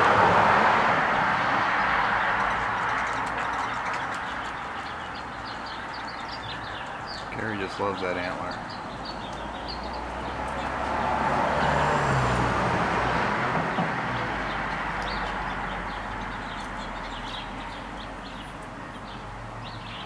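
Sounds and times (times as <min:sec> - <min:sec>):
car passing by: 0:00.0 - 0:04.3, 0:09.5 - 0:17.4
small birds chirping: 0:01.2 - 0:11.8, 0:13.7 - 0:20.0.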